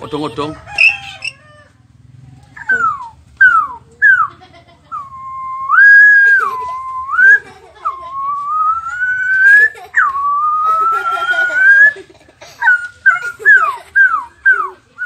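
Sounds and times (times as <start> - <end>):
boy whistling: 2.6 - 4.3, 4.9 - 12.0, 12.6 - 14.8.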